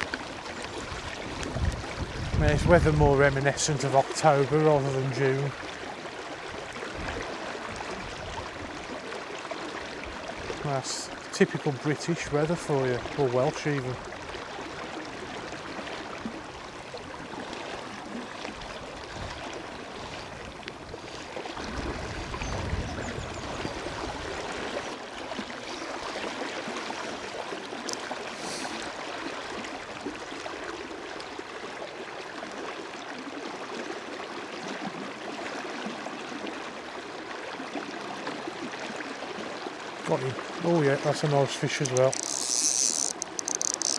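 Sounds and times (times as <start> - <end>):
river water running: 0.0 - 43.9
wind rumble on microphone: 0.8 - 3.6, 18.6 - 24.5.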